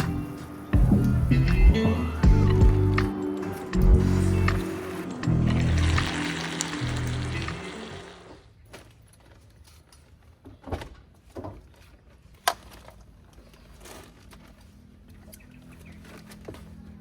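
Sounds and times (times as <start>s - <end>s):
music: 0.0s - 8.2s.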